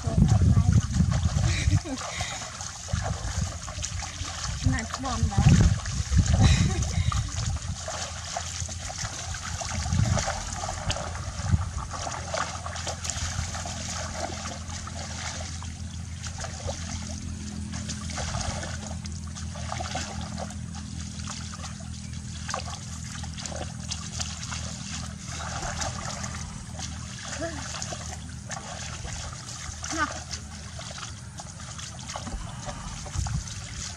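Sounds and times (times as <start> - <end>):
shallow water trickling and splashing: 0.0 - 33.9
steady low hum: 0.0 - 33.9.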